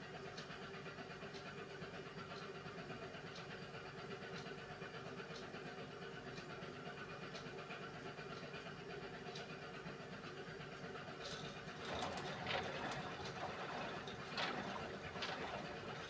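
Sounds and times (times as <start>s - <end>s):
washing machine motor hum: 11.8s - 16.0s.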